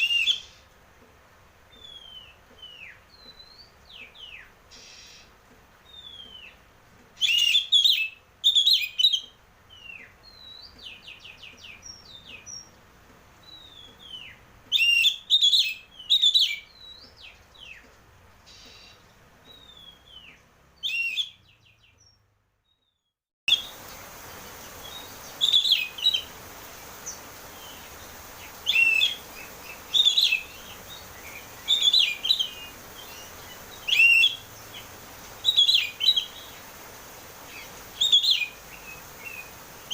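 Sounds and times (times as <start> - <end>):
steady hiss: 0.0 - 15.2, 23.5 - 39.9
bird singing whistles: 7.2 - 10.7, 13.5 - 17.0, 19.5 - 21.4, 24.9 - 26.3, 28.6 - 34.5, 35.4 - 36.4, 37.6 - 39.9.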